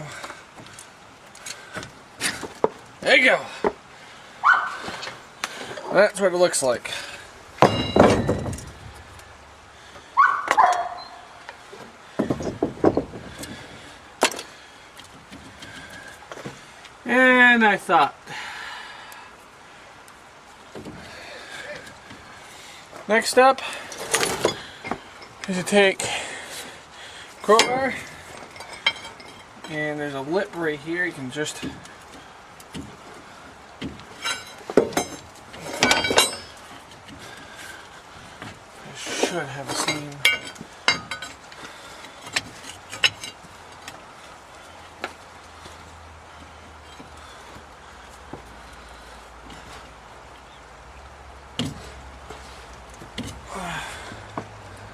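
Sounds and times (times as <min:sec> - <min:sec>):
bark-like cry: 0:04.4 - 0:04.8, 0:10.2 - 0:11.3
metal parts clanking: 0:07.6 - 0:08.9, 0:27.4 - 0:29.8, 0:34.2 - 0:36.7, 0:39.0 - 0:41.4, 0:42.1 - 0:43.4.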